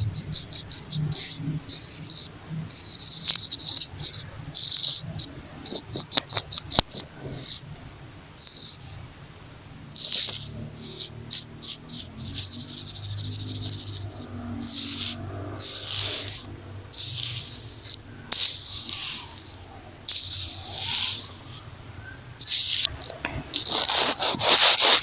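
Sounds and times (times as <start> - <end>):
fine scratching clicks: 0.0 - 7.6, 8.4 - 9.0, 9.9 - 21.7, 22.4 - 25.0
hair tie rubbing on microphone: 10.0 - 21.7, 22.4 - 25.0.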